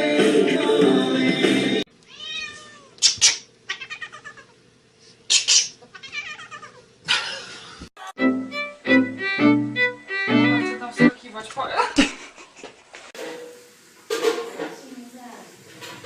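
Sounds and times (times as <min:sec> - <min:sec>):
music: 0:00.0 - 0:01.9, 0:08.0 - 0:11.2
cat meowing and yowling: 0:02.1 - 0:03.0, 0:03.7 - 0:04.5, 0:05.9 - 0:06.8.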